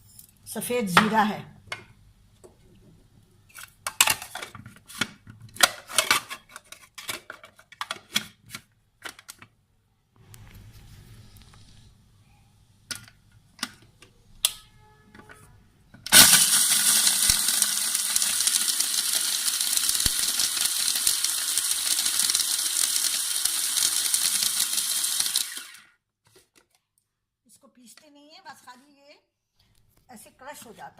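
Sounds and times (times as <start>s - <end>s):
electric grinder crushing spices: 16.1s - 26.0s.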